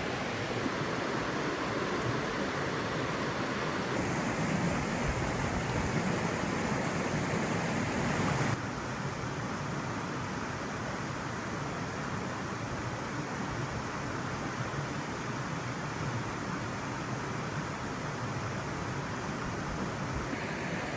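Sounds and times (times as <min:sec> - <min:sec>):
rushing falling water: 0:00.0 - 0:08.6, 0:20.4 - 0:20.9.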